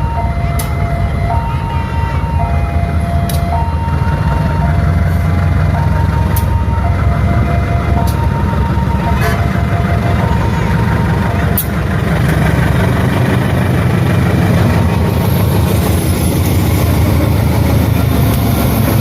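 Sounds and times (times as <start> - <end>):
two-tone crossing alarm: 0.0 - 12.3
train rumbling past: 0.0 - 19.0.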